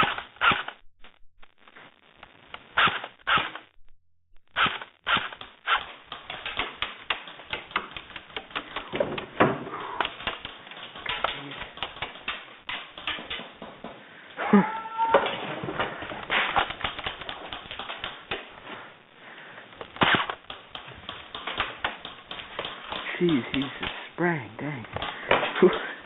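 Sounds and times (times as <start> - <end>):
airsoft guns firing: 20.0 - 22.7.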